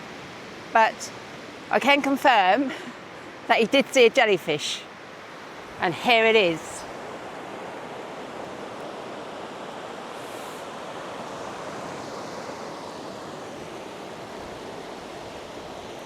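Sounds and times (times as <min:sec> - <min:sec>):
sea surf breaking on sand: 0:05.0 - 0:16.0.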